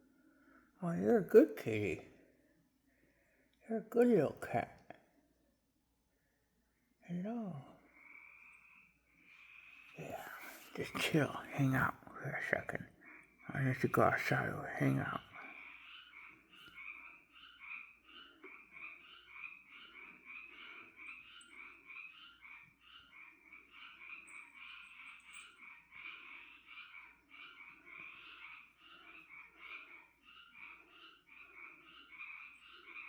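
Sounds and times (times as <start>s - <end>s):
frogs calling: 7.1s - 33.0s.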